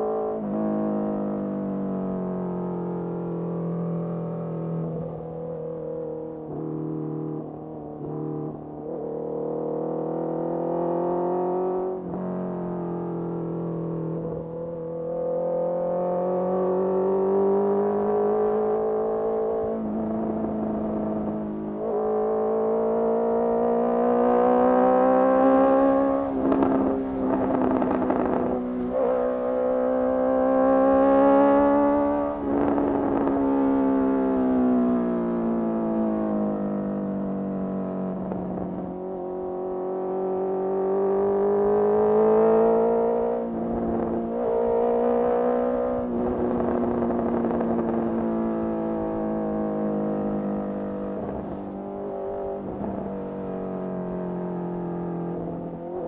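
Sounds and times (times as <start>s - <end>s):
motorcycle engine revving: 13.0s - 56.0s.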